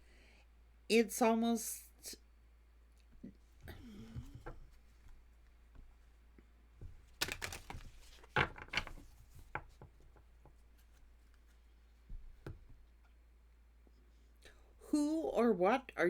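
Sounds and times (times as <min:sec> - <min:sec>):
cards rustling: 0:06.8 - 0:11.6.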